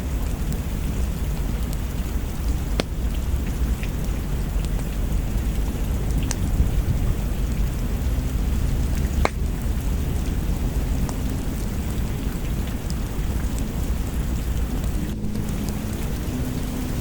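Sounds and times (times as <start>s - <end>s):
deep low rumble: 0.0s - 17.0s
steady rain: 0.0s - 17.0s
wood fire crackling pops: 8.8s - 9.8s.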